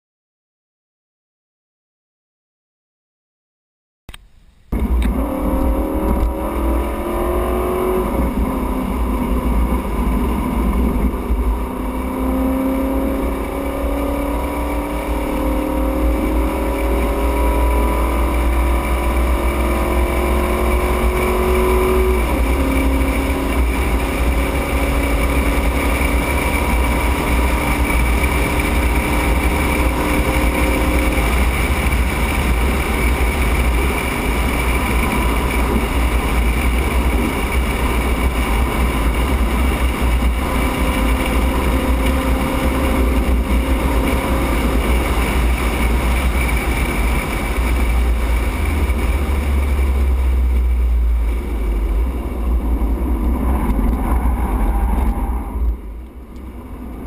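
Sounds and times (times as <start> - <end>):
car engine accelerating hard: 4.7 - 57.0.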